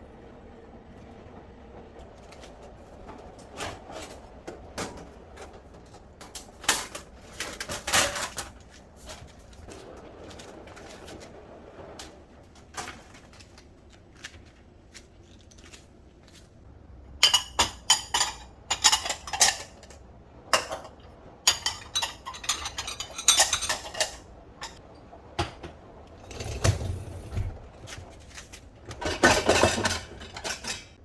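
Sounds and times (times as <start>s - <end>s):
cutlery and dishes clinking: 17.2s - 20.0s, 20.6s - 24.8s, 29.0s - 31.0s.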